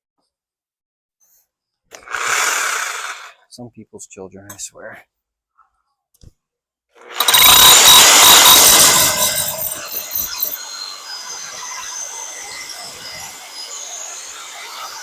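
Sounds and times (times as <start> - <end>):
power tool whining: 1.9 - 3.4, 7.0 - 15.0.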